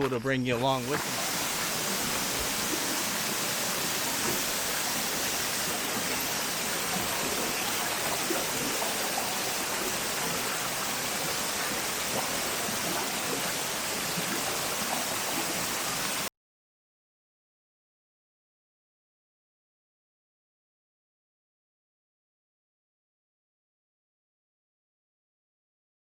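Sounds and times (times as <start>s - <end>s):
rushing water: 0.0s - 16.3s.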